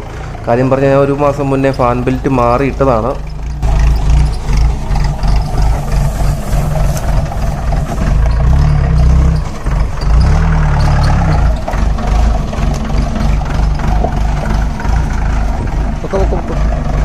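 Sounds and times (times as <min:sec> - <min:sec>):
jeep engine running: 0:00.0 - 0:17.0
fan belt chirping: 0:02.8 - 0:16.3.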